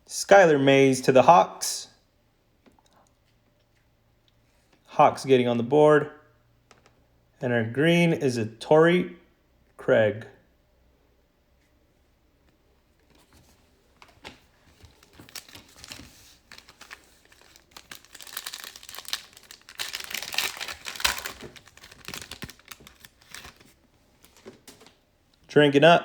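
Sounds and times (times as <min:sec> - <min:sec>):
wrapper tearing and crinkling: 0:14.8 - 0:24.9.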